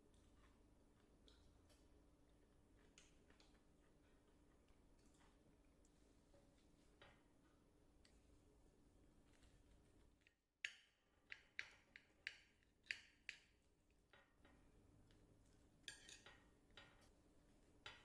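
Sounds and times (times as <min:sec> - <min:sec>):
utensils tapping on dishes: 0:15.8 - 0:17.1.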